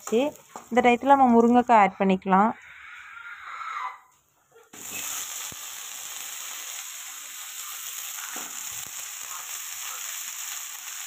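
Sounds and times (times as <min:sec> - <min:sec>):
frying sizzle in hot oil: 0:00.0 - 0:01.8, 0:04.8 - 0:11.0.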